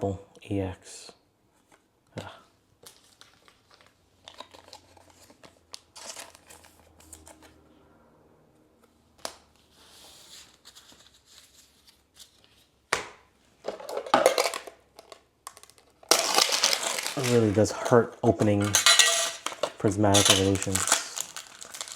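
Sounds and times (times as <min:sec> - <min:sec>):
foil wrapper crinkling: 0:02.9 - 0:06.8, 0:14.4 - 0:21.9
trading cards rustling: 0:02.9 - 0:07.5, 0:13.8 - 0:21.9.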